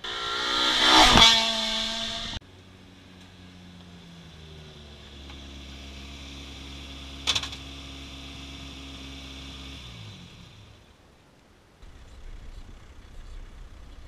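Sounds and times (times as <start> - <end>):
engine running down: 0.0 - 11.0, 11.8 - 14.0
car engine idling: 11.8 - 14.0.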